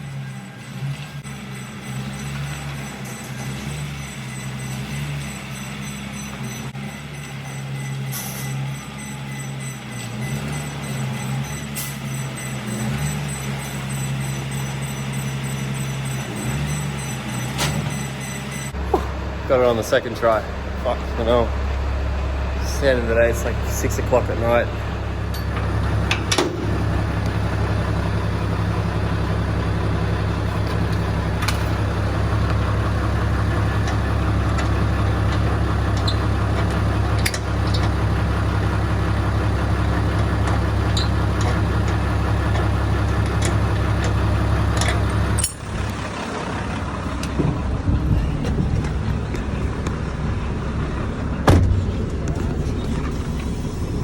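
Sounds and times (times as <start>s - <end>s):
vehicle engine running: 0.0s - 54.0s
uneven rumbling: 15.4s - 54.0s.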